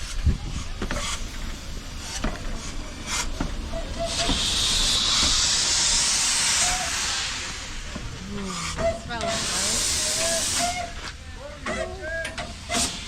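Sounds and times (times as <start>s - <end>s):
steam locomotive hissing steam: 0.8s - 11.1s
low background hiss: 1.1s - 7.4s.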